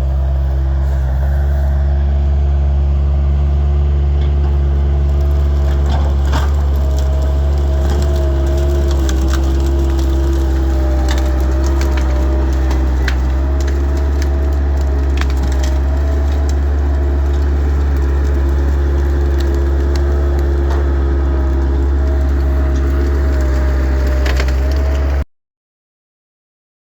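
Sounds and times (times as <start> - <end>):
wood splintering crackles: 3.8 - 25.2
engine-driven saw cutting wood: 4.3 - 25.2.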